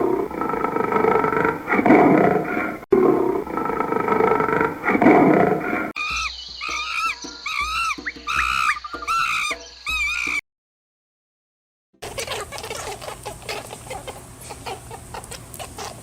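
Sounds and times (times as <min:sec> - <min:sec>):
big cat roaring and growling: 0:00.0 - 0:05.9
animal chirping calls: 0:06.0 - 0:10.4, 0:12.0 - 0:16.0.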